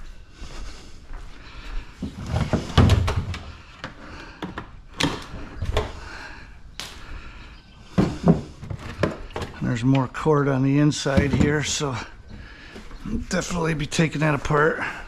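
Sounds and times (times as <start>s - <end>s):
hard objects knocking and clunking: 2.0s - 6.1s, 7.8s - 10.2s, 11.0s - 13.0s.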